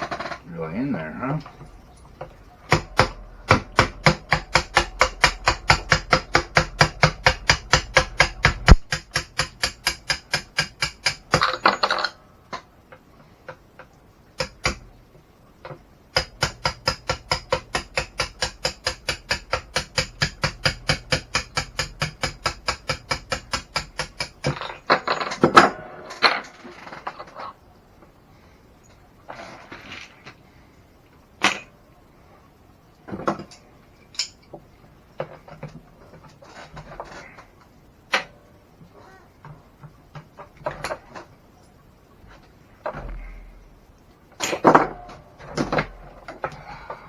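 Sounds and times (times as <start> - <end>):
small hammer tapping: 2.7 - 11.6, 14.4 - 14.9, 16.2 - 24.7.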